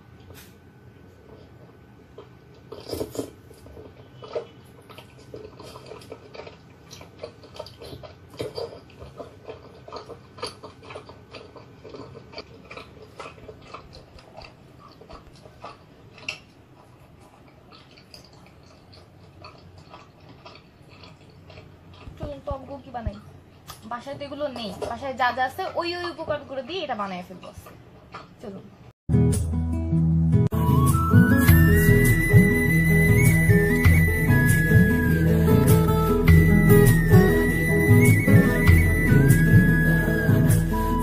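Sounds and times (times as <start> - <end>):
person chewing wet mouth clicks: 3.9 - 22.2.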